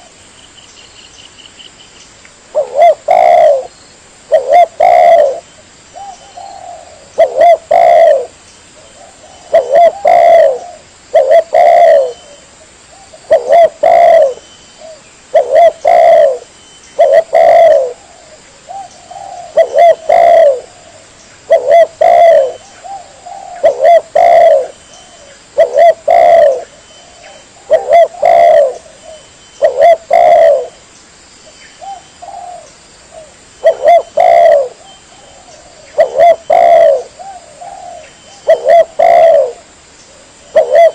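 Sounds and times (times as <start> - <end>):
dove cooing: 2.5 - 3.7, 4.3 - 5.4, 6.0 - 30.8, 31.8 - 40.9.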